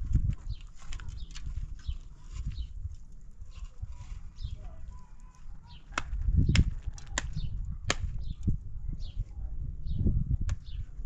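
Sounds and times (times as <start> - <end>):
sharp cracks: 5.8 - 8.3.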